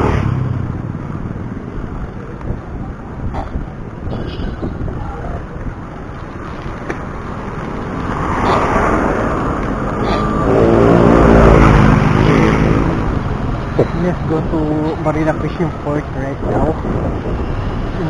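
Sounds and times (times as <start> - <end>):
road traffic noise: 0.0 - 18.0
motor vehicle engine passing close: 7.5 - 14.5.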